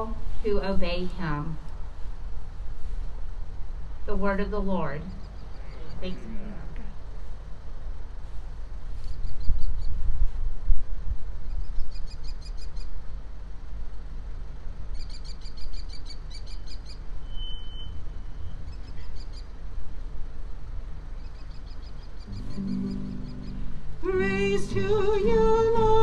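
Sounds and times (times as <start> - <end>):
steady low rumbling: 0.0 - 8.9, 22.2 - 26.0
small birds chirping: 5.1 - 6.3, 14.9 - 17.1, 21.1 - 23.9.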